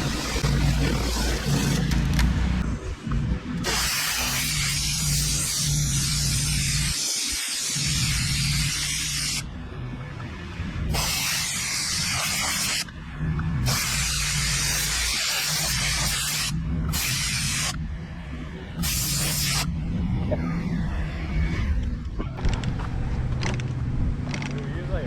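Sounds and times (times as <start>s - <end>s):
engine humming: 0.0s - 3.8s
pressure washer water hissing: 3.6s - 9.4s, 10.9s - 12.9s, 13.6s - 17.8s, 18.8s - 19.7s.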